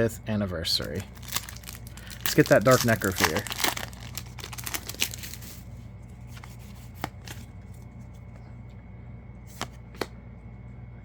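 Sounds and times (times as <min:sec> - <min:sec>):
foil pack crinkling: 0:00.7 - 0:05.8.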